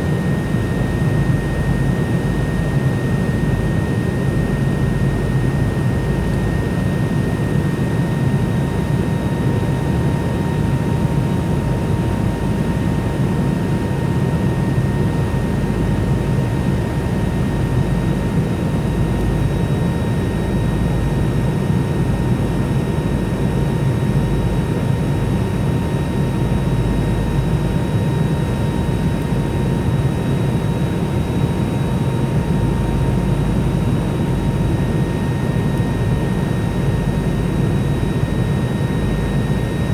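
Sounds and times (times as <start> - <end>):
jet engine rumble: 24.3 - 39.9.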